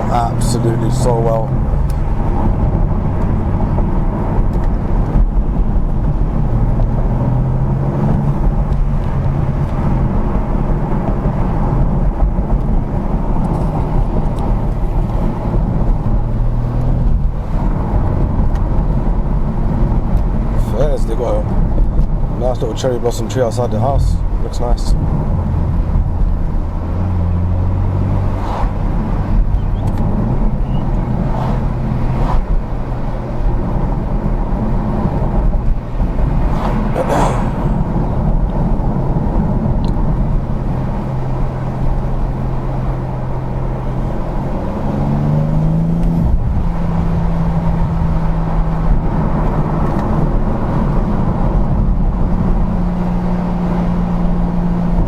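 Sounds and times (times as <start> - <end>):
car engine cruising: 0.0 - 55.0.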